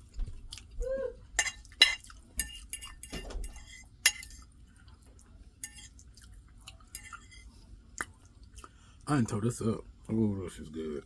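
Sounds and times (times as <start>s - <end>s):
cutlery clinking on plate: 1.4s - 4.4s.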